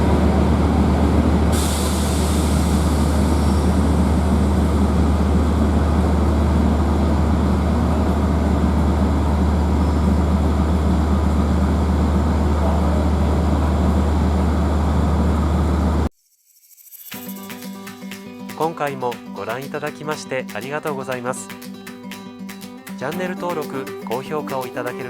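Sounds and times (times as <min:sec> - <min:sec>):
diesel locomotive engine running: 0:00.0 - 0:16.1.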